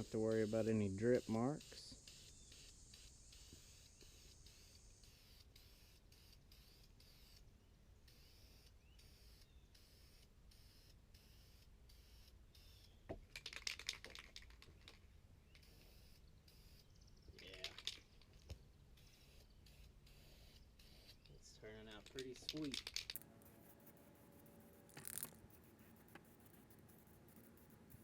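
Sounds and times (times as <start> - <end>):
aerosol spray can spraying: 0.0 - 7.4, 15.6 - 16.9, 19.0 - 21.3, 21.9 - 28.0.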